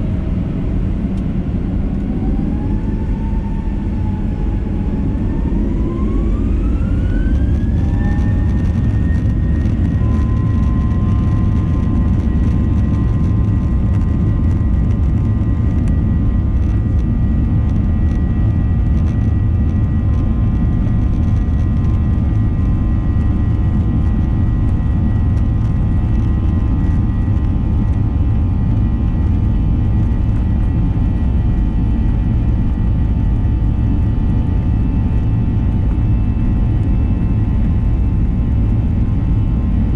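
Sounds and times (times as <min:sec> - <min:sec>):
jet engines at takeoff power: 0:00.0 - 0:39.9.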